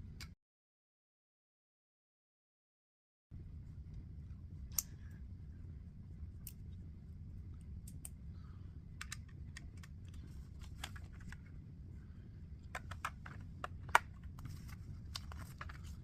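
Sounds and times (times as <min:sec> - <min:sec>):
plastic pieces clicking and rattling: 0:12.6 - 0:16.0.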